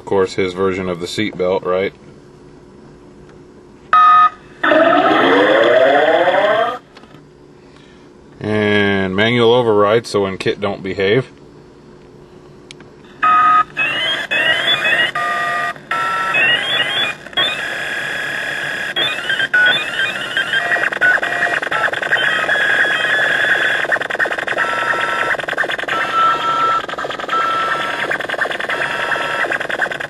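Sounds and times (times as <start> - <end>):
electronic computer tones: 4.0 - 6.8, 13.2 - 17.7, 18.9 - 30.0
rising electronic chirps: 4.6 - 6.8.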